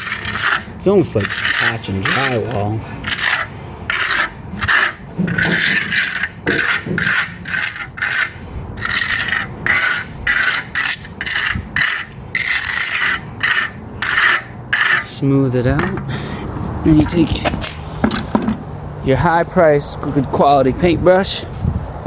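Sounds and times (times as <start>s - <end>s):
steel trowel scraping concrete: 0.0s - 16.1s.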